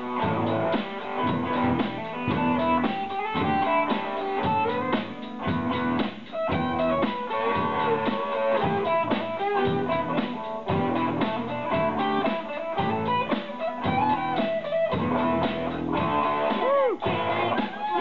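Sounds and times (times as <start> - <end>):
rock band playing live: 0.0 - 18.0.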